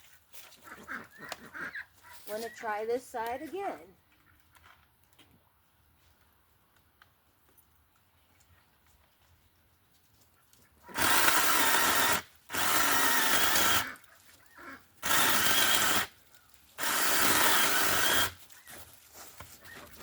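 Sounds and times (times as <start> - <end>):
mini chainsaw cutting branches: 10.9 - 14.0, 15.0 - 18.8.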